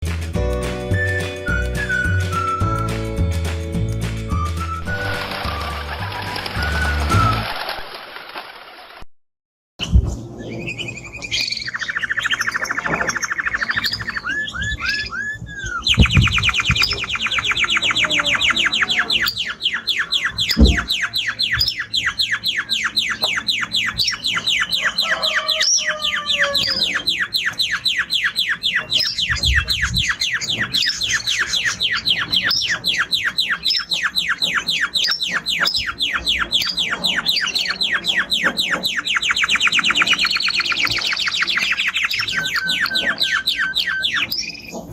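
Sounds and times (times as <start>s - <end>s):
canary singing trills: 10.4s - 44.9s.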